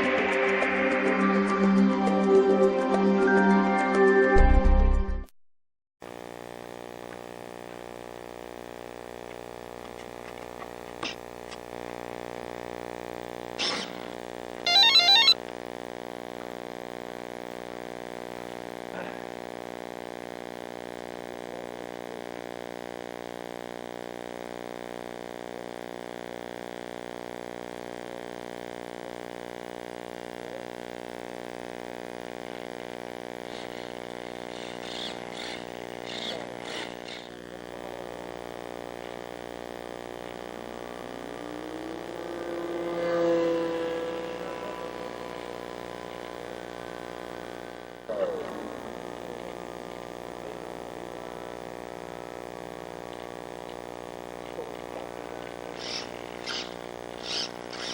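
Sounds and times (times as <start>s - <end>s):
model airplane motor drone: 32.2s - 57.9s.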